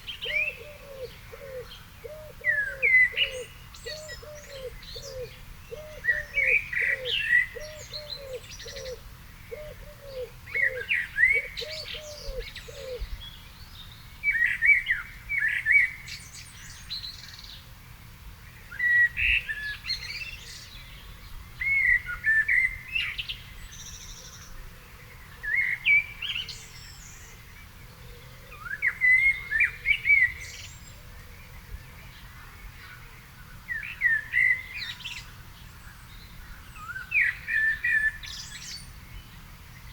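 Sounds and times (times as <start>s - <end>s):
bird cooing: 0.0s - 13.2s, 27.2s - 31.8s
songbird warbling: 0.0s - 13.4s.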